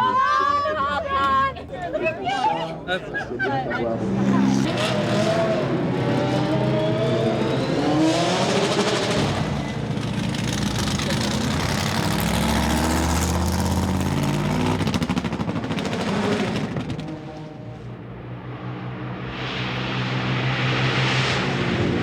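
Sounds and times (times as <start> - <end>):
race car engine accelerating: 3.9 - 17.4.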